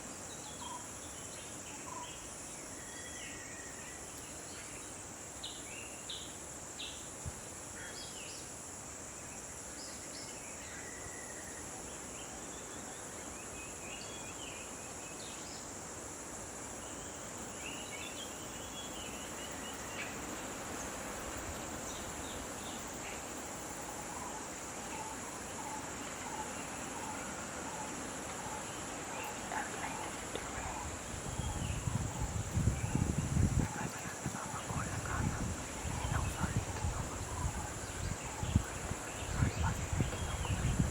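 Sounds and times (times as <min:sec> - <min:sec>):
background hiss: 0:00.0 - 0:40.9.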